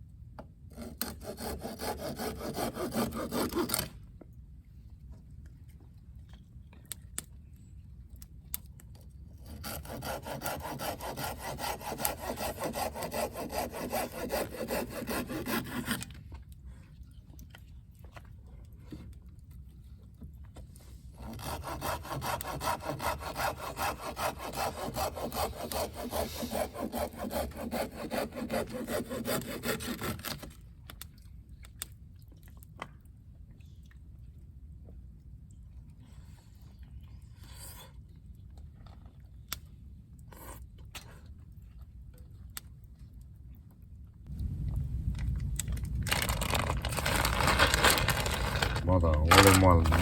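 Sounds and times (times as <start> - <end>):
hand saw cutting wood: 0.7 - 4.0, 9.4 - 16.2, 21.2 - 30.5, 47.0 - 50.0.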